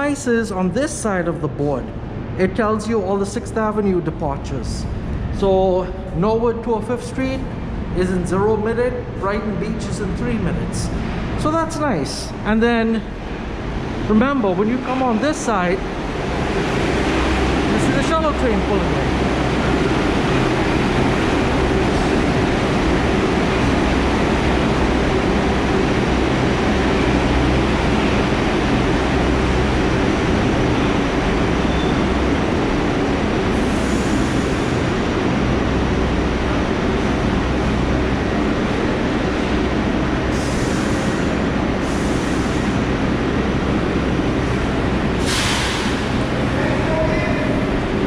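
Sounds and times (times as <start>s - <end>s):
subway train rumbling: 0.0s - 48.0s
short hissing sounds: 45.2s - 46.1s.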